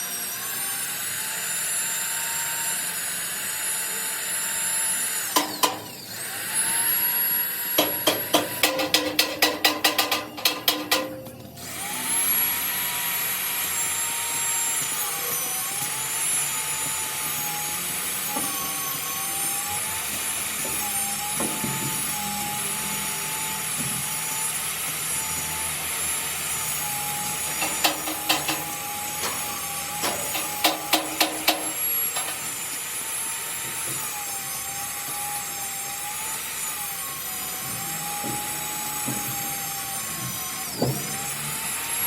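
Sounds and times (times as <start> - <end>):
power tool motor whine: 0.0 - 42.0.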